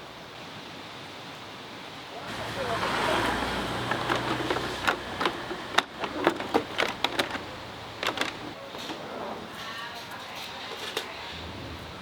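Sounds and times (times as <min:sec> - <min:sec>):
sharp clicks and knocks: 0:03.7 - 0:09.0.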